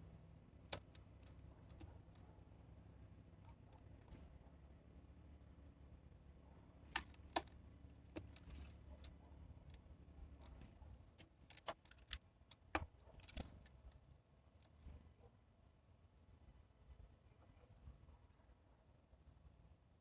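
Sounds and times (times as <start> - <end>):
birds pecking at feeder: 0.7 - 2.3, 6.8 - 14.0.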